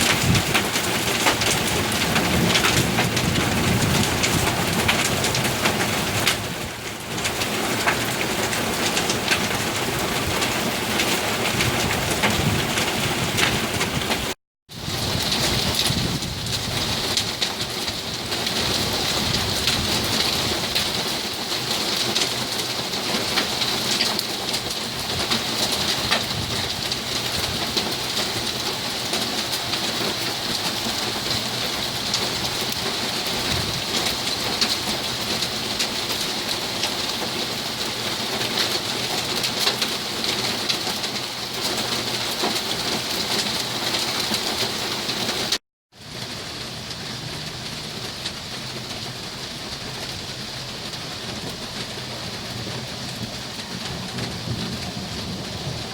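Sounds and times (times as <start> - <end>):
heavy rain on hard surfaces: 0.0 - 55.9.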